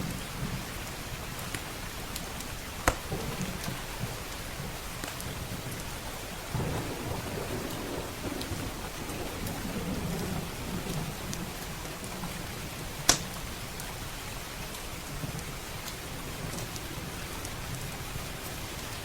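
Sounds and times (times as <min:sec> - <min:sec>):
steady rain: 0:00.0 - 0:19.0
wood fire crackling: 0:00.1 - 0:18.5
low thunder rumble: 0:03.0 - 0:13.5.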